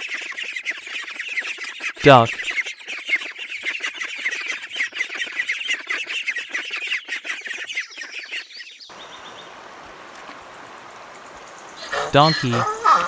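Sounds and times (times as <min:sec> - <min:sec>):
ducks calling: 0:00.0 - 0:13.0
shallow stream rushing: 0:08.9 - 0:11.8.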